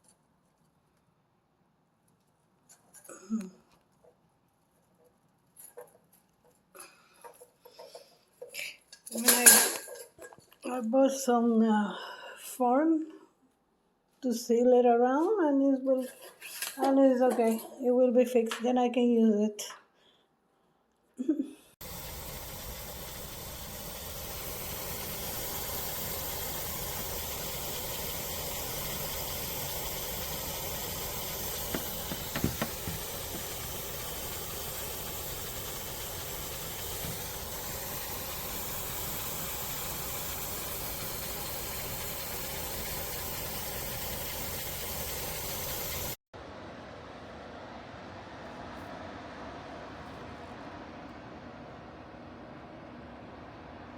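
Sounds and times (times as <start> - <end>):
air conditioner fan hiss: 21.8 - 53.9.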